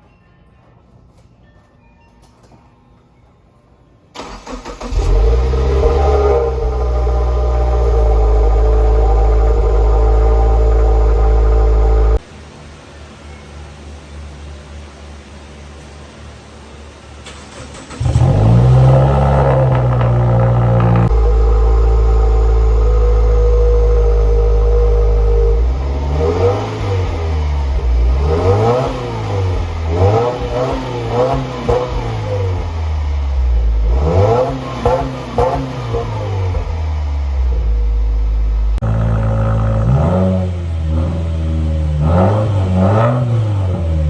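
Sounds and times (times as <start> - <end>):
car engine revving: 4.2 - 12.2, 17.3 - 44.0
car engine idling: 4.2 - 44.0.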